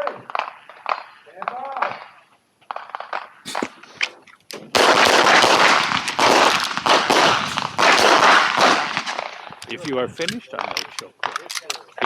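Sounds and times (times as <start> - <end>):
pistol shots with echo: 4.7 - 9.6.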